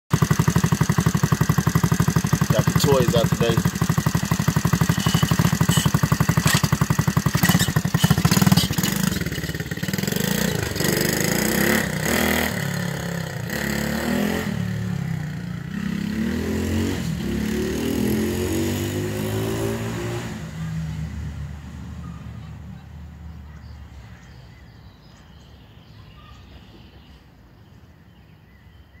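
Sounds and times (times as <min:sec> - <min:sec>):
dirt bike engine revving: 0:00.1 - 0:20.8.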